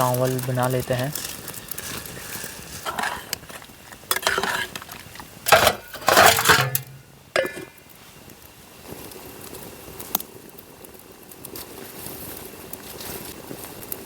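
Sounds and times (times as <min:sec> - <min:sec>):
metal pot and utensils clattering: 0:00.0 - 0:07.8
metal clank ringing: 0:04.1 - 0:04.8, 0:05.5 - 0:07.8.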